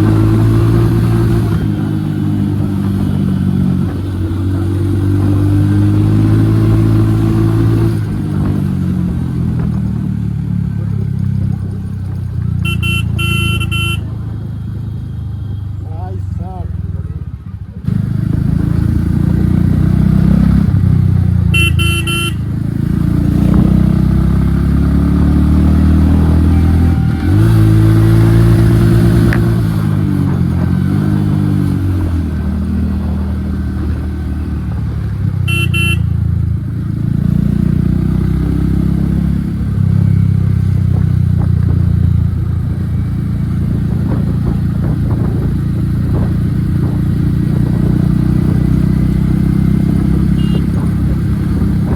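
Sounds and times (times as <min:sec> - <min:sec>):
motorcycle engine revving: 0:00.0 - 0:51.9
vehicle horn beeping: 0:12.6 - 0:14.2, 0:21.5 - 0:22.6, 0:26.1 - 0:28.7, 0:35.4 - 0:36.3, 0:50.3 - 0:50.9.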